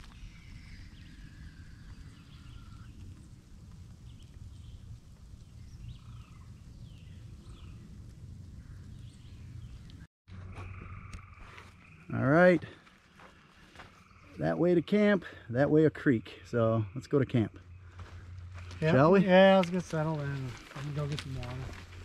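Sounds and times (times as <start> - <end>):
steady low rumble: 0.0 - 11.9, 16.4 - 22.0
birds chirping: 0.0 - 22.0.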